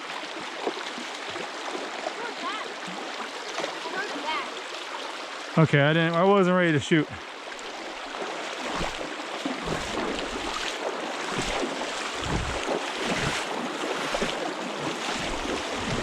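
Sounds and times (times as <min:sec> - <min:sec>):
shallow stream flowing: 0:00.0 - 0:16.0
wind buffeting microphone: 0:12.1 - 0:13.4, 0:15.2 - 0:16.0.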